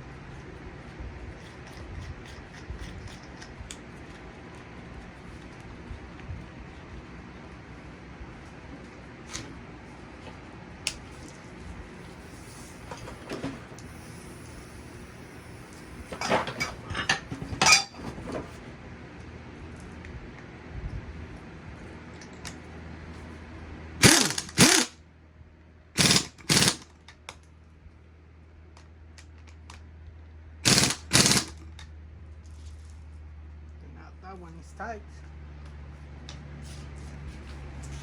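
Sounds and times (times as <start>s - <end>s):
tools and parts clinking: 16.0s - 18.5s
power wrench tightening bolt: 24.0s - 24.9s, 26.0s - 26.8s, 30.7s - 31.6s.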